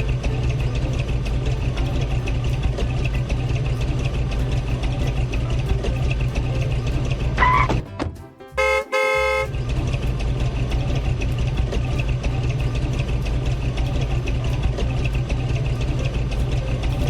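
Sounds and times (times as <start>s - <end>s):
engine idling with ticking: 0.0s - 7.8s, 8.6s - 17.0s
vehicle horn toots: 8.6s - 9.8s.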